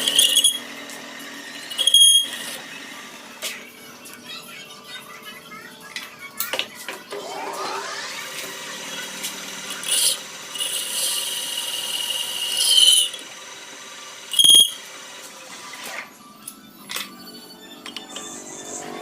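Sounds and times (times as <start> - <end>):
cutter squealing on metal: 0.0 - 0.8, 1.4 - 2.8, 8.9 - 13.2, 14.3 - 14.9
machine tool whine: 0.0 - 3.4, 7.2 - 16.1
short ringing tone: 14.4 - 14.8.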